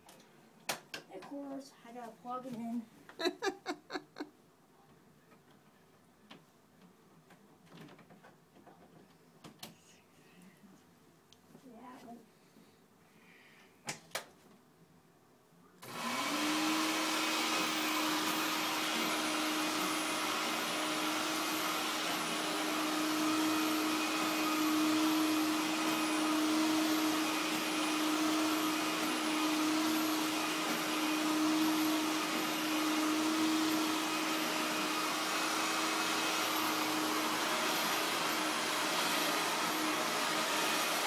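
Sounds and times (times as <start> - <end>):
vacuum cleaner motor whining: 15.8 - 41.0.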